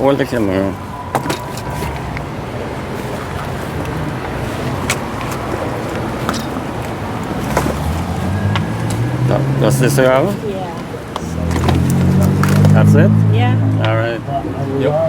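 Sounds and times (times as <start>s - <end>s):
traffic noise: 0.0s - 15.0s
low engine hum: 0.8s - 15.0s.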